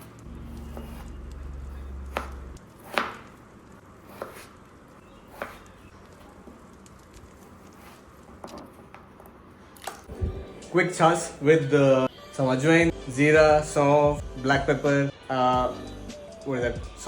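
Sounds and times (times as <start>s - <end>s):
knife chopping on cutting board: 2.1s - 3.3s, 4.1s - 4.5s.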